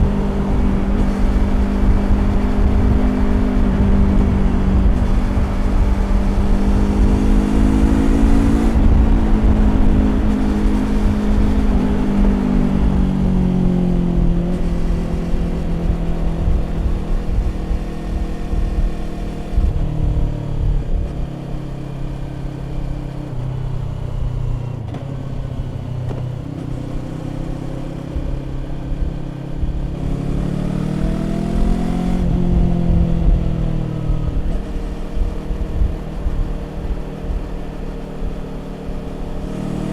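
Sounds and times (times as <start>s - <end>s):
motorcycle engine at speed: 0.0s - 39.9s.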